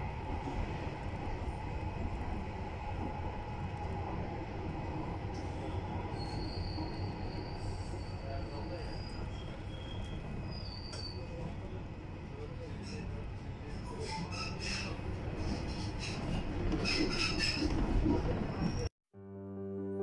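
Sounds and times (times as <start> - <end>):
train wheels rumbling on track: 0.0 - 18.9
high wheel squeal: 6.1 - 11.4.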